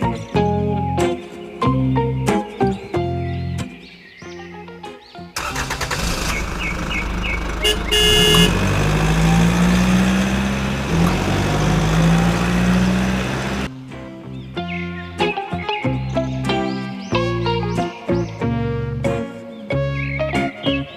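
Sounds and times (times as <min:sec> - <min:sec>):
vehicle engine running: 0:05.4 - 0:13.7
horn honk: 0:07.5 - 0:11.2.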